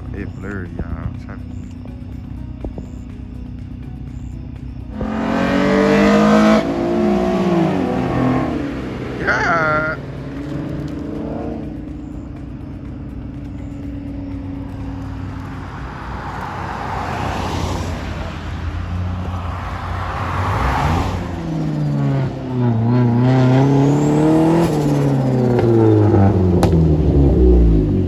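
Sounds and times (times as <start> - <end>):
engine revving: 0.0 - 28.0
low engine hum: 0.0 - 28.0
rushing noise: 15.2 - 25.8.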